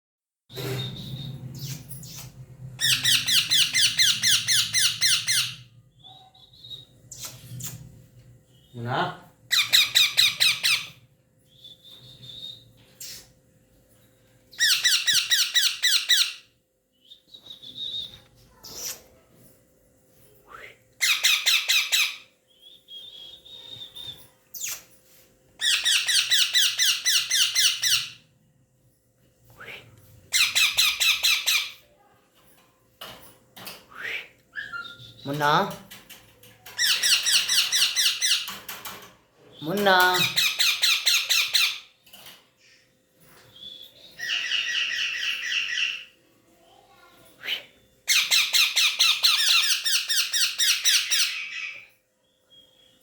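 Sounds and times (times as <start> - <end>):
parrot squawking: 2.8 - 5.6, 9.5 - 11.0, 21.0 - 22.2, 25.6 - 28.2, 30.3 - 31.8, 44.2 - 46.1, 48.1 - 51.9
parrot harsh calls: 44.2 - 46.1.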